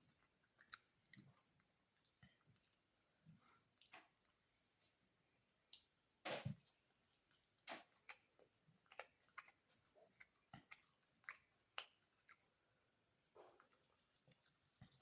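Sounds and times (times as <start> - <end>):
wet mouth clicks and smacks chewing: 0.1 - 2.8, 7.8 - 15.0.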